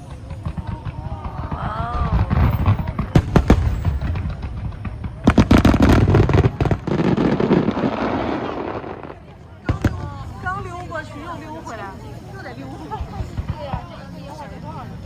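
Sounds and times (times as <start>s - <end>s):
sharp firework cracks: 0.0s - 10.7s
cluster of firework bangs: 0.0s - 11.8s, 12.9s - 14.5s
fireworks booming: 0.0s - 14.9s.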